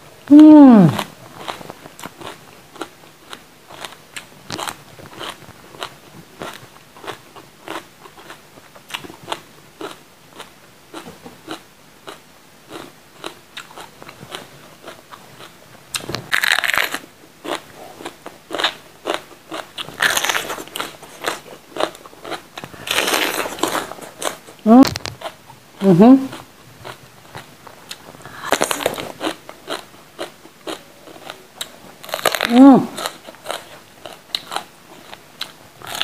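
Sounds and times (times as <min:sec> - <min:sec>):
soft chewing: 0:00.9 - 0:16.4, 0:17.4 - 0:25.6, 0:26.2 - 0:36.0
crisp crunches of bell pepper: 0:15.9 - 0:25.4, 0:27.9 - 0:36.0.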